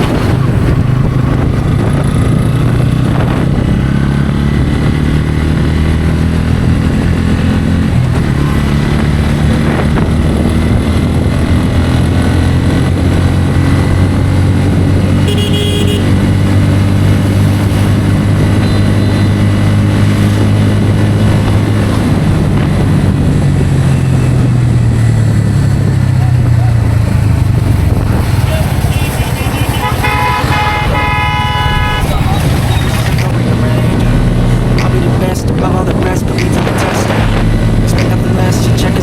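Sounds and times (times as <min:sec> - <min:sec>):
motorcycle engine running: 0:00.0 - 0:39.0
horn toot: 0:15.1 - 0:16.3, 0:28.5 - 0:33.2.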